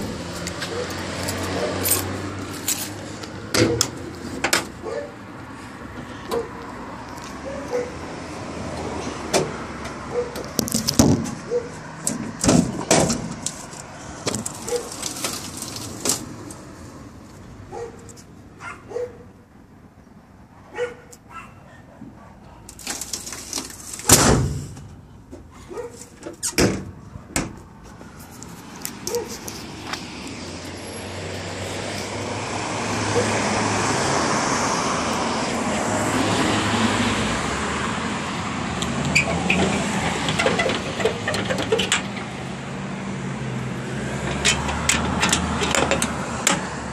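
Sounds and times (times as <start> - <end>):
irregular knocks and clunks: 39.5 - 42.4.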